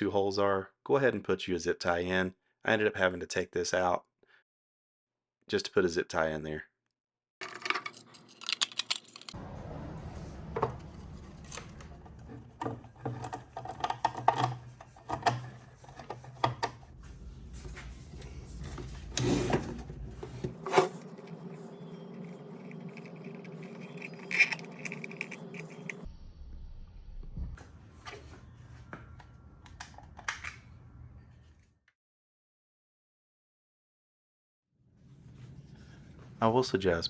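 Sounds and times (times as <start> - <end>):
steady low hum: 9.4 - 26.1.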